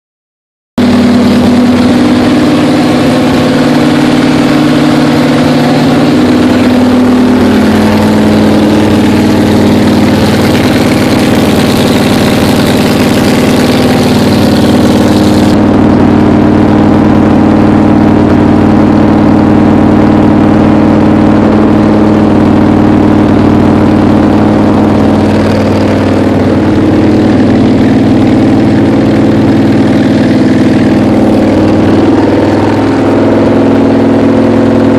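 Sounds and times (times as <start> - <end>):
car engine running: 0.8 - 34.9.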